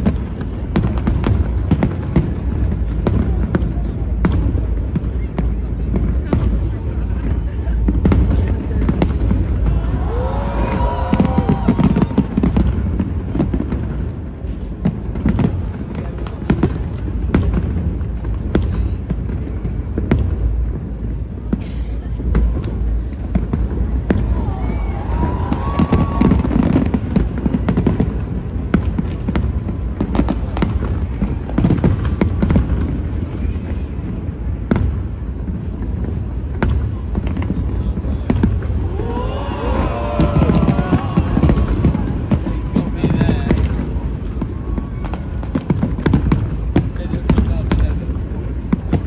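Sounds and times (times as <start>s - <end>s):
low rumble of booms: 0.0s - 33.4s, 34.0s - 49.0s
fireworks bangs and crackles: 0.0s - 49.0s.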